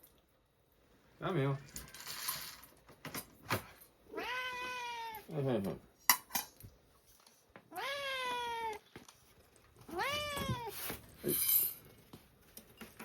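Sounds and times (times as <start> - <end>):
cat meowing: 4.1 - 5.3, 7.7 - 8.9, 9.8 - 10.9.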